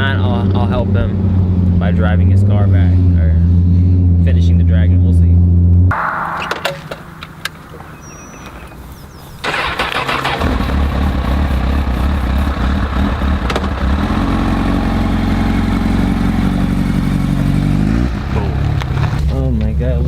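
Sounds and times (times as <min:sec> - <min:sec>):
car engine starting and running: 0:00.0 - 0:20.0
sudden loud burst: 0:05.9 - 0:08.5.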